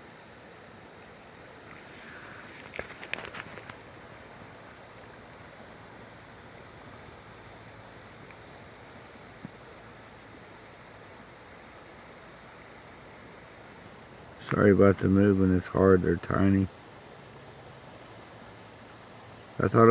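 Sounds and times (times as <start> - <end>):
high-pitched insect trill: 0.0 - 19.9
riverside hiss: 0.0 - 19.9
handling clicks: 1.7 - 3.9.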